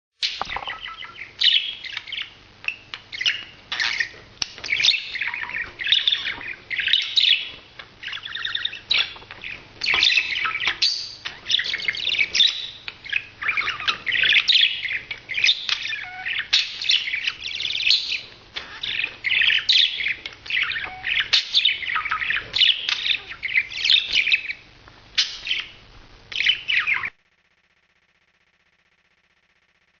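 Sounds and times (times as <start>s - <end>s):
budgerigar chattering and warbling: 3.1s - 24.6s.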